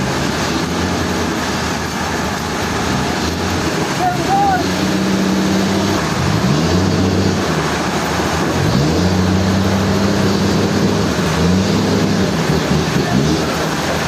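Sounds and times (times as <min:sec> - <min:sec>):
sawmill machinery motor humming: 0:00.0 - 0:14.0.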